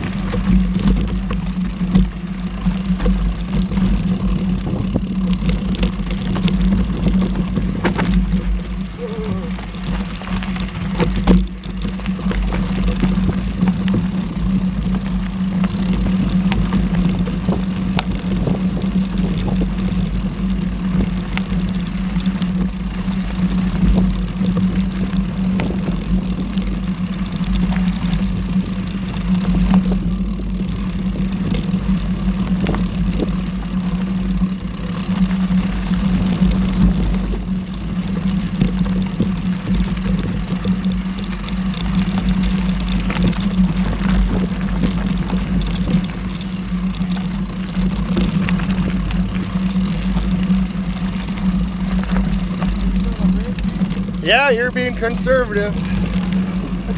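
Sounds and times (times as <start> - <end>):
bike knocks and rattles: 0.0 - 55.2
bike tyres rolling on dirt: 0.0 - 56.9
low hum and rumble: 0.0 - 56.9.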